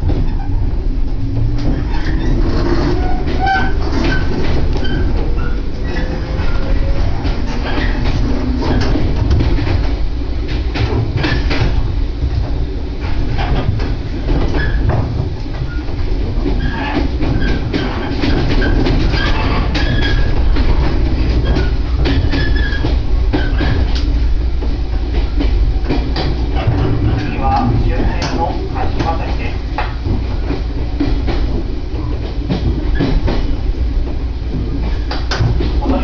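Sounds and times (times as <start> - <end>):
train running gear rumble: 0.0 - 36.0
wheels clicking over rails: 0.0 - 36.0
high wheel squeals: 1.8 - 6.9.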